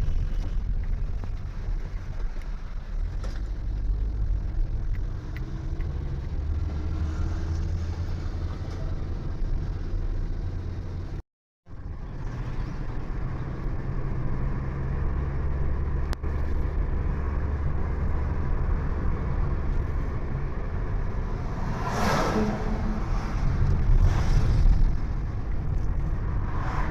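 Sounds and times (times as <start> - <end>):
vehicle road and engine rumble: 0.0 - 26.9
rushing whoosh: 21.0 - 26.9.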